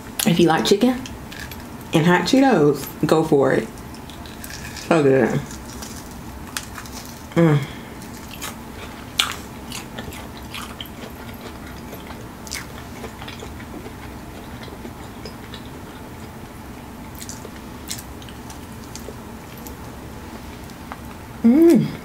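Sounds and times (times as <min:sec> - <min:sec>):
crunchy chewing and biting: 0:04.0 - 0:20.0.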